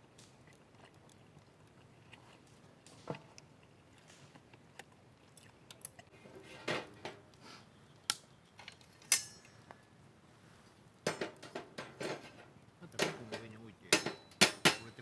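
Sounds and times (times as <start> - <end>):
sharp ringing clink: 9.1 - 9.6
cookware knocking and clicking: 14.0 - 14.9.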